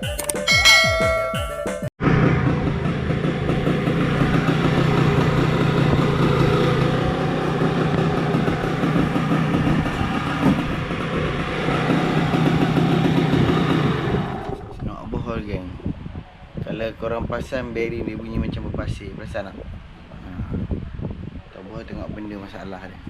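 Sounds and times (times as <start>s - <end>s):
motorcycle engine running: 0.6s - 14.9s.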